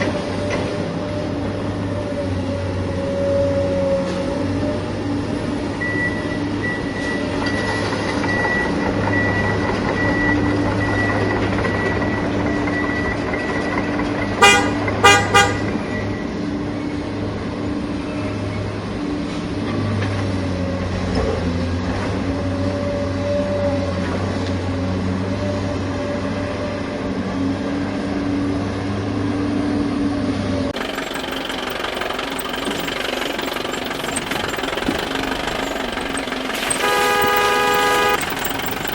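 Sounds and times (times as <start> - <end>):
steady engine hum: 0.0 - 22.5, 23.1 - 38.9
short horn toots: 14.4 - 15.8, 35.4 - 38.8.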